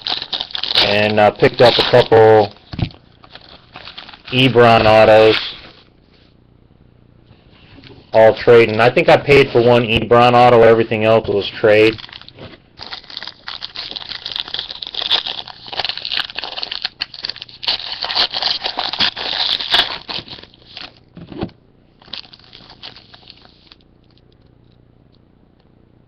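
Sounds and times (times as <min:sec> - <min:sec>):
packaging crinkling: 0:00.0 - 0:05.9, 0:11.4 - 0:21.0, 0:22.0 - 0:24.2.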